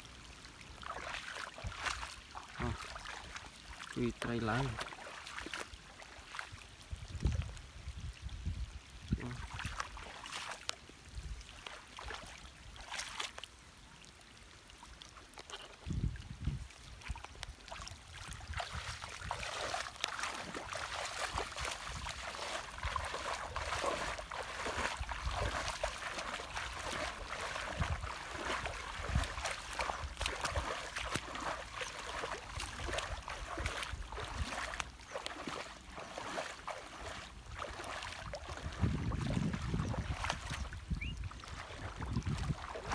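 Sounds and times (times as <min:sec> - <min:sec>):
water trickling and splashing: 0:00.0 - 0:42.9.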